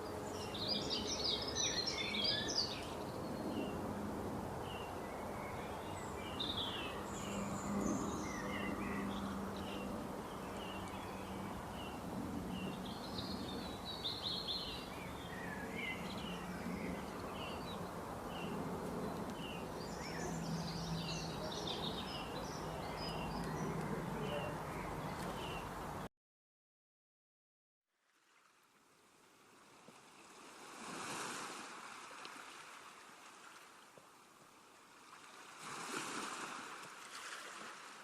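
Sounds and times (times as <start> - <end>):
birds chirping: 0.0 - 3.8, 4.6 - 26.1.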